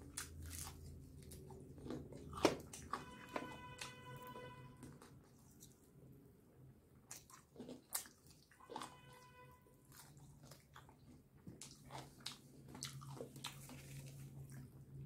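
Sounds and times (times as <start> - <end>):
wet chewing smacks: 7.1 - 9.0.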